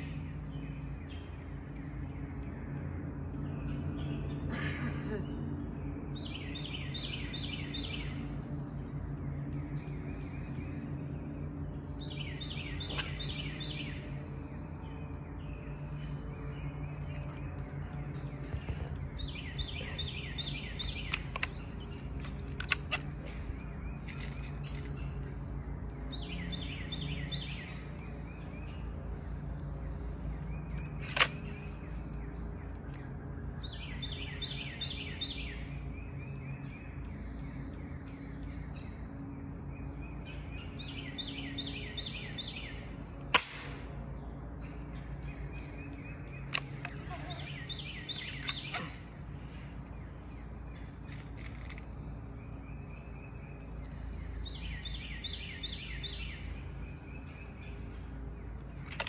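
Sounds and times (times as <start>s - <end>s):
songbird singing: 0.0s - 59.0s
steady low hum: 0.0s - 59.0s
sharp clicks: 20.8s - 23.4s.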